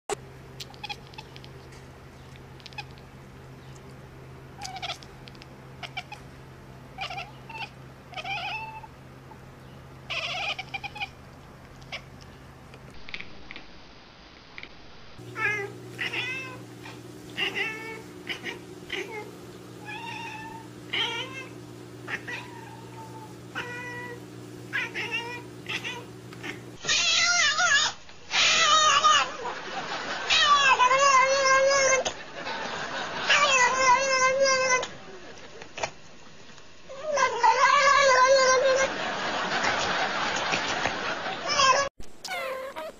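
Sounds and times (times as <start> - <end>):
cats meowing: 0.6 - 1.4, 4.6 - 5.1, 5.8 - 6.3, 7.0 - 8.9, 10.1 - 11.2, 15.3 - 16.7, 17.3 - 29.3, 30.3 - 32.0, 36.9 - 38.8, 41.5 - 42.9.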